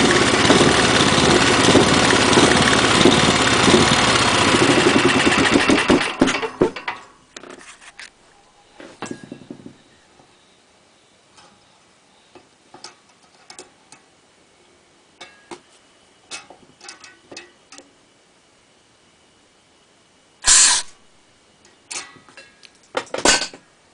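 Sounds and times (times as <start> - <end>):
clicks and taps of metal parts: 16.3 - 17.9
compressed air hiss: 20.4 - 21.0.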